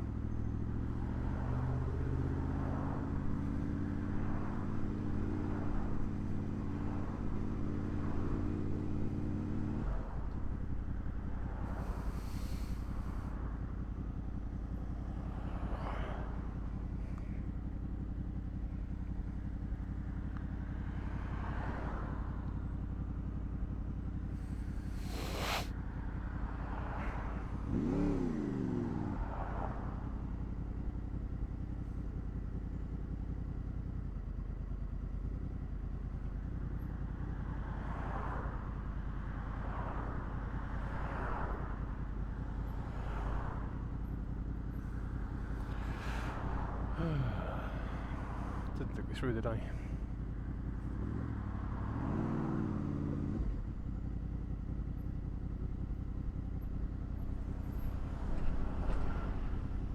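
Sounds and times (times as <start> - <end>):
motorcycle engine running: 0.0 - 59.9
short swish: 24.9 - 25.7.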